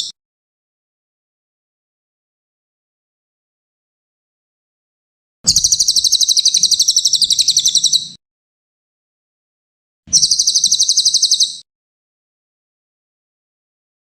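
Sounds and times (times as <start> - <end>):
songbird high trills: 5.5 - 8.2, 10.1 - 11.6.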